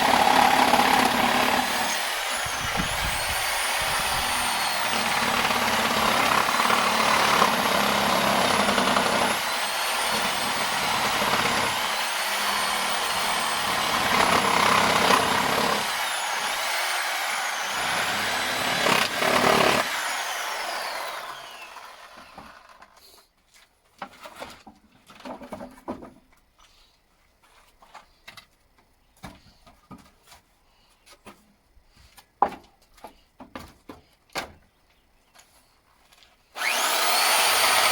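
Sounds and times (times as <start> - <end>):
reciprocating saw cutting wood: 0.0 - 22.8, 36.6 - 37.9.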